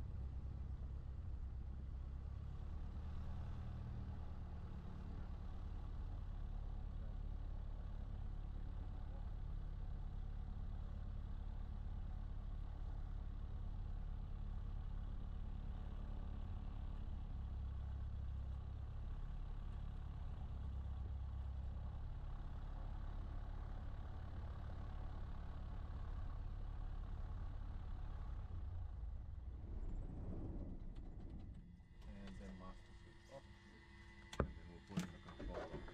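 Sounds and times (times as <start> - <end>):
aircraft engine idling: 31.0 - 35.9.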